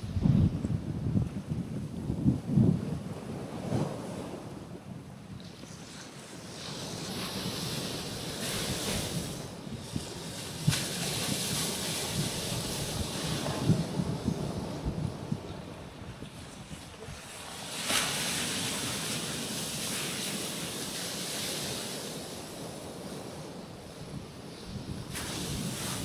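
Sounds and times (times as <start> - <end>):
wind buffeting microphone: 0.0 - 20.3, 22.2 - 26.0
waves breaking on rocks: 5.4 - 26.0.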